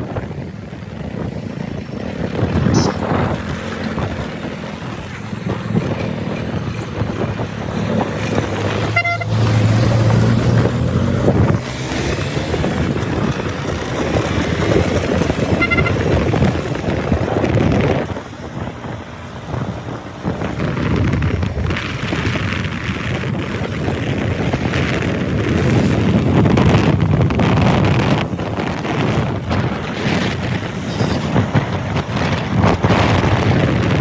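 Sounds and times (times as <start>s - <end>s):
motorcycle engine and road noise: 0.0s - 34.0s
wind on microphone: 0.0s - 34.0s
vehicle horns tooting: 2.7s - 3.3s, 8.8s - 9.5s, 15.4s - 16.4s.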